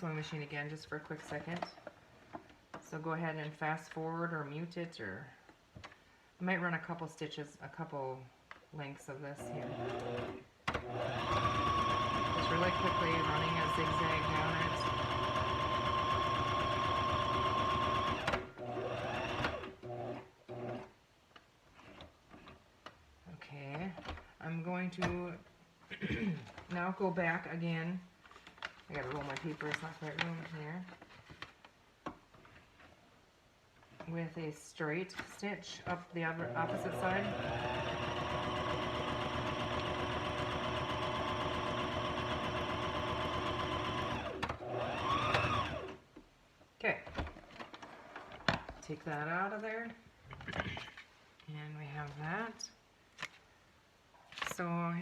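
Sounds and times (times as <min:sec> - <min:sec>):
sewing machine stitching: 0:09.4 - 0:20.9, 0:36.4 - 0:46.0.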